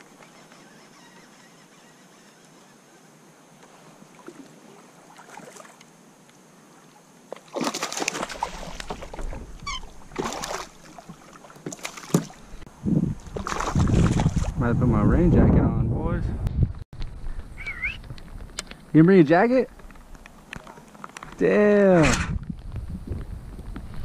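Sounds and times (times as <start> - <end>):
water sloshing around kayak: 3.6 - 5.9, 6.8 - 12.7, 13.3 - 14.6
wind rumbling on microphone: 8.5 - 10.3, 12.4 - 19.0, 19.6 - 24.0.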